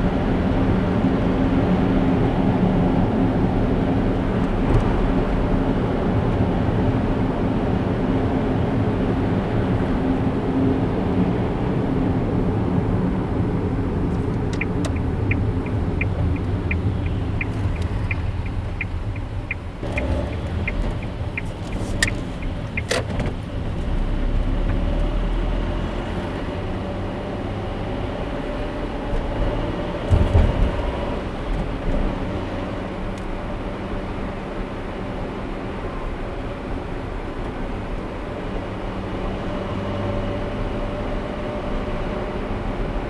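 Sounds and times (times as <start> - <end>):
car engine and road noise: 0.0 - 43.0
turn signal ticking: 13.8 - 26.2
sharp clicks: 14.2 - 23.2.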